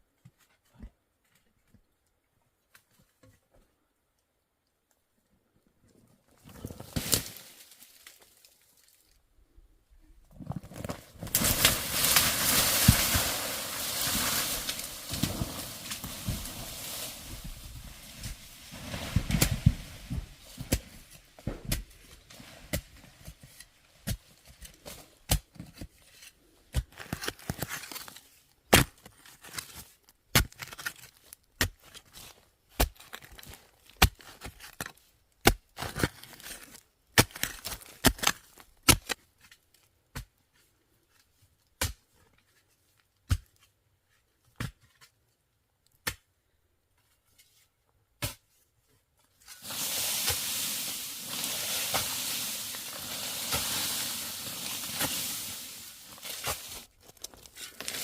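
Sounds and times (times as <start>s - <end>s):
rustling: 10.4s - 23.8s, 49.3s - 58.0s
food sizzling in hot oil: 49.6s - 55.9s.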